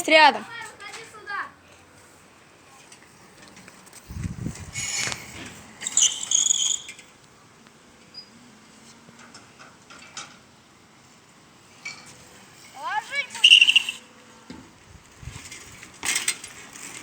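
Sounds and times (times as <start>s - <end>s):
person whistling a high note: 13.4s - 14.0s.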